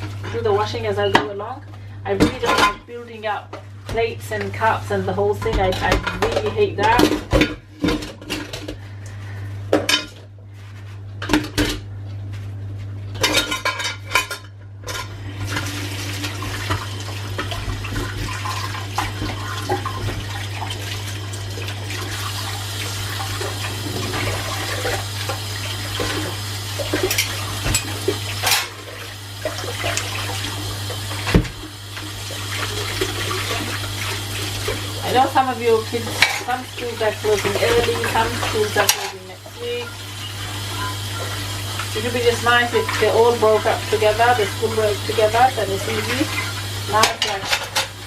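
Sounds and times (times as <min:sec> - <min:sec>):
tap water running: 0:00.0 - 0:10.2, 0:13.1 - 0:48.0
dishes and cutlery clattering: 0:13.2 - 0:15.1, 0:47.0 - 0:48.0.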